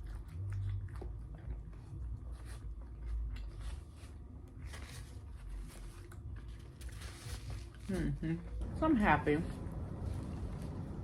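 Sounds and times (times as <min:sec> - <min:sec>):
person chewing food: 0:00.0 - 0:07.8.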